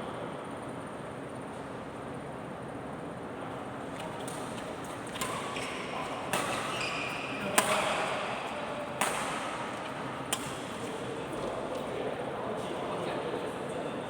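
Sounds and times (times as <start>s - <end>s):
racket strikes: 4.2s - 10.8s
shoe squeaks: 4.8s - 7.8s.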